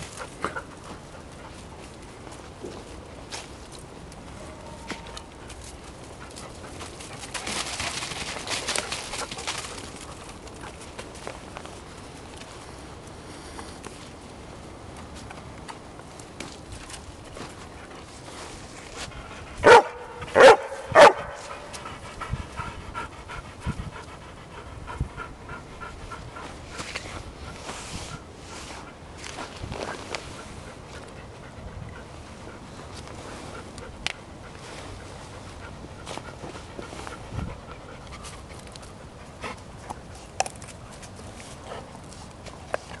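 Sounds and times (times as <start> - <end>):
dog barking: 19.6 - 21.6
dog panting: 20.9 - 29.5, 30.3 - 43.0.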